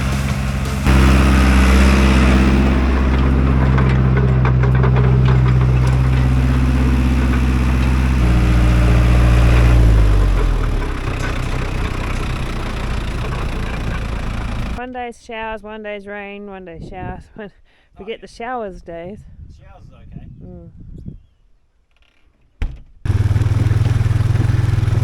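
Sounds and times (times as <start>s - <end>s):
rattling: 0.0s - 14.8s, 23.1s - 25.0s
tractor engine running: 0.0s - 14.8s, 23.1s - 25.0s.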